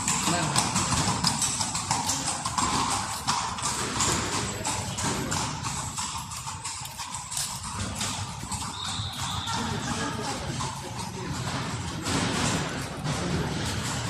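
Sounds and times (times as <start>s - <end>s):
clip-clop on stone: 0.0s - 14.0s.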